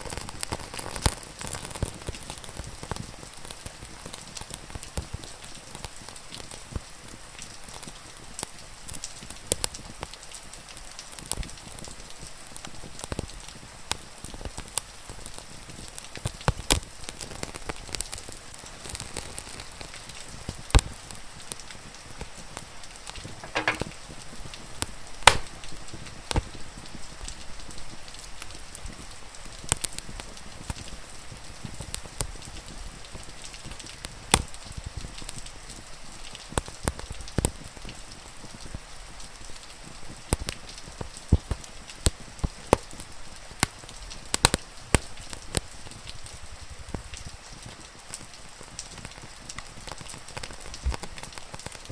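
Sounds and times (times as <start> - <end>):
rain hissing: 0.0 - 40.3
wood fire crackling and popping: 0.0 - 51.9.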